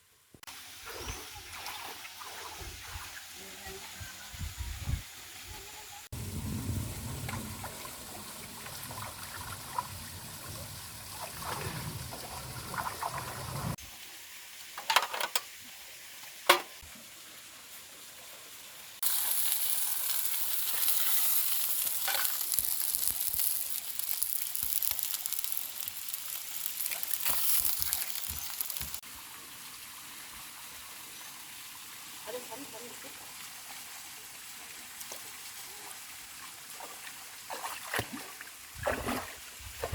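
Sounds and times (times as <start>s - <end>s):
food sizzling in a pan: 18.9s - 29.1s.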